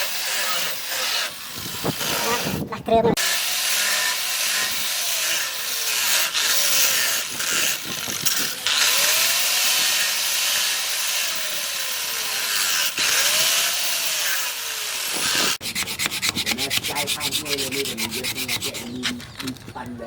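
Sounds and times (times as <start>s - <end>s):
electric grinder grinding steel: 0.0s - 19.7s.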